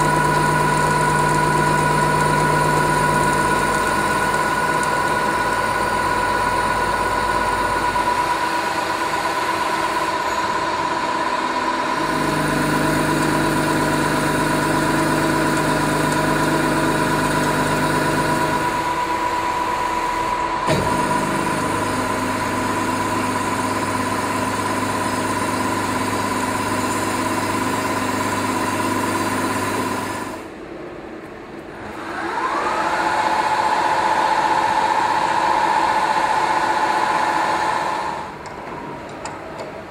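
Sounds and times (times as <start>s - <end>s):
low machine hums: 0.0s - 29.1s
machine motor whine: 0.0s - 30.6s, 31.8s - 39.1s.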